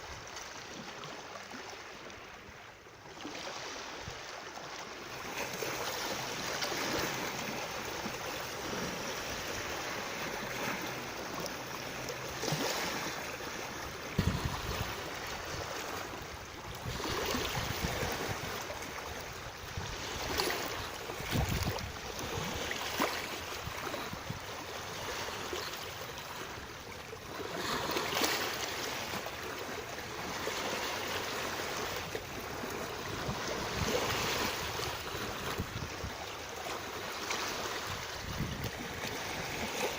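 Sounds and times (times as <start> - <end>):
water rushing: 5.0 - 24.0.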